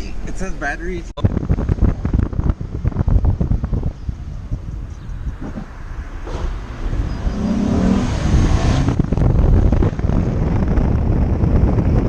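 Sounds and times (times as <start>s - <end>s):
car engine accelerating: 5.3s - 12.0s.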